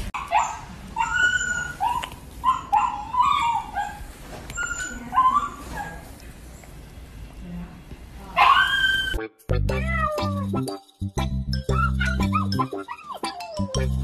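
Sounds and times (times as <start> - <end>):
puppy whimpering and yipping: 0.3 - 6.0, 11.7 - 14.0.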